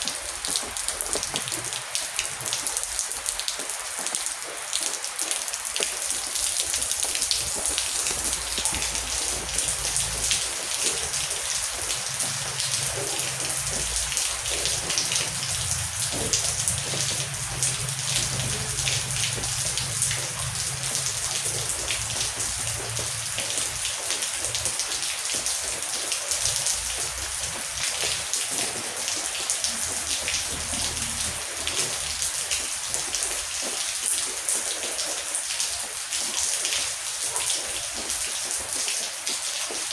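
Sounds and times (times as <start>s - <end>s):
heavy rain falling: 0.0s - 39.9s
distant thunder rumble: 7.1s - 24.8s.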